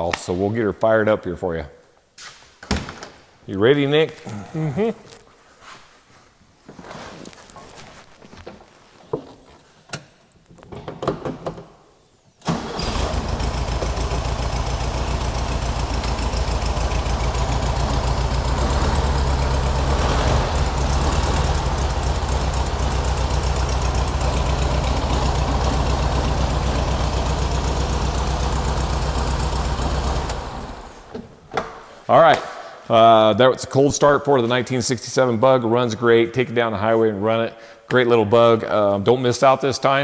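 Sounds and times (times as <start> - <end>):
car engine starting and idling: 12.4 - 31.3.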